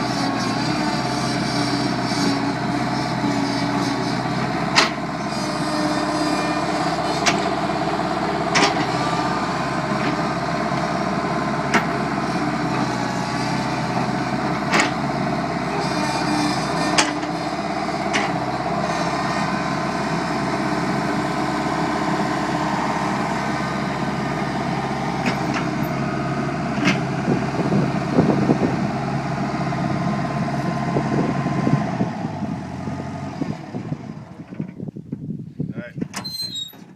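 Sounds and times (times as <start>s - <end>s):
loader engine running: 0.0s - 35.4s.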